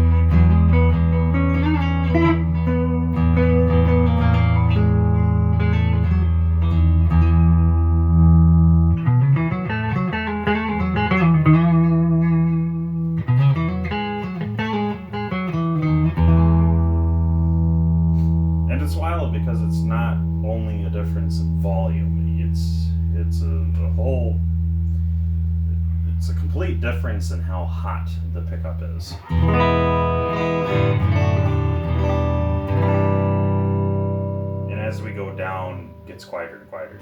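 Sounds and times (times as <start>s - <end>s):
electric guitar through an amp: 0.0s - 37.0s.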